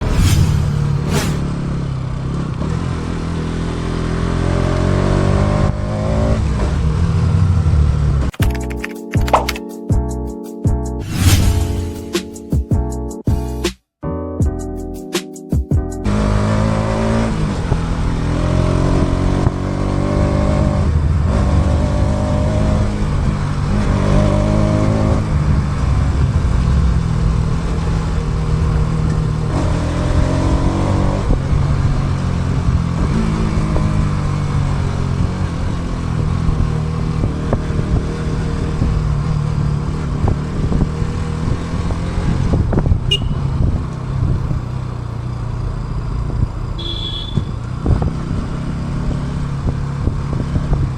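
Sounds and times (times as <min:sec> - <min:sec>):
motorcycle engine revving: 0:00.0 - 0:08.2, 0:16.1 - 0:45.6, 0:46.8 - 0:50.9
wind rush on microphone: 0:40.1 - 0:44.6.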